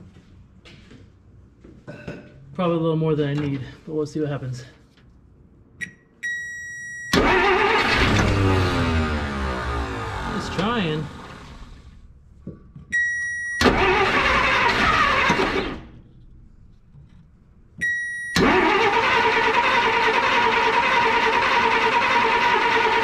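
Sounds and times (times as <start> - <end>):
car engine cranking on starter: 7.1 - 12.2, 13.6 - 16.0, 18.3 - 23.0.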